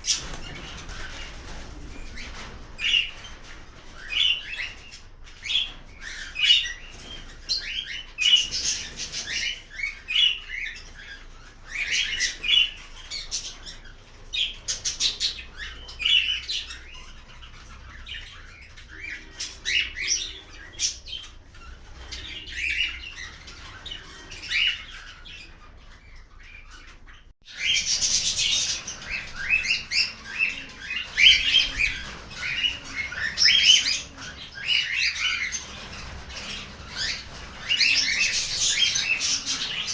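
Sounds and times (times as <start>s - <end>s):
cockatiels chirping and whistling: 3.9s - 13.7s, 27.6s - 39.9s.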